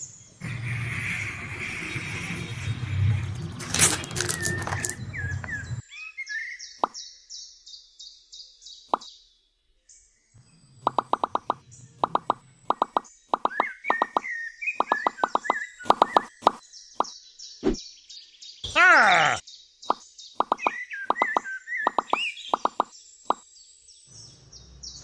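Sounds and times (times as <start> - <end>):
birds chirping: 0.0 - 25.0
pebbles clattering out of cart: 3.5 - 5.1
short plopping pops: 20.4 - 23.4.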